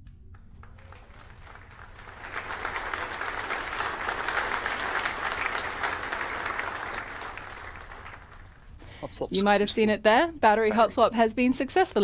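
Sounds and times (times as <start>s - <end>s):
people applauding: 0.3s - 9.6s.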